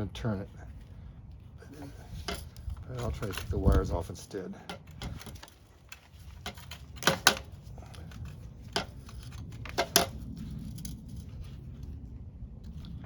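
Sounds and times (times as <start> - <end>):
steady low hum: 0.0 - 13.0
small parts clicking and snapping: 4.6 - 11.9.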